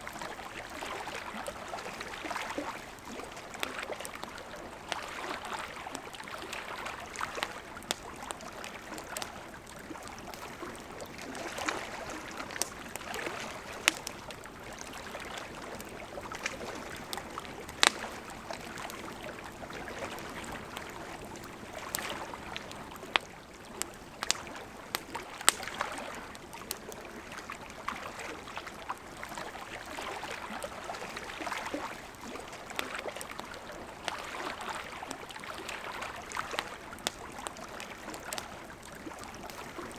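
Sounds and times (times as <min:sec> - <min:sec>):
river flowing: 0:00.0 - 0:39.9
wood fire crackling and popping: 0:07.0 - 0:27.1, 0:36.3 - 0:39.9.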